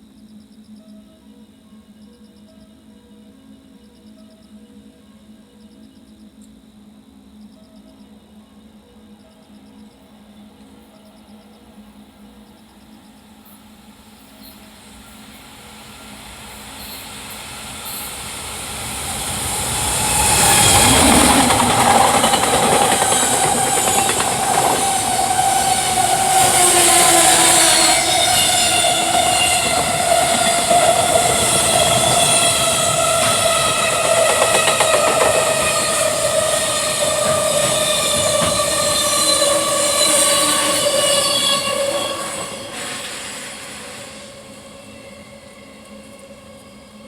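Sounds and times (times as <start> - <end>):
train whine: 13.3 - 47.0
freight train rumbling past: 13.4 - 47.0.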